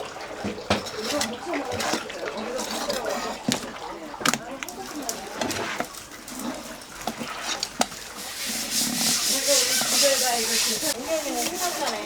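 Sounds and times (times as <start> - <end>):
knife scraping fish: 5.5 - 12.0.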